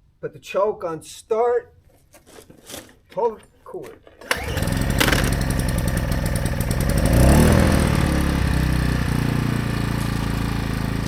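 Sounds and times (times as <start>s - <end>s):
generator engine running: 4.2s - 11.0s.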